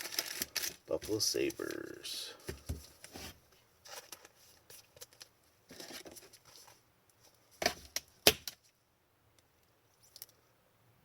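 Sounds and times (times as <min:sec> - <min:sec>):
cards rustling and clicking: 0:00.0 - 0:03.2, 0:03.9 - 0:06.8.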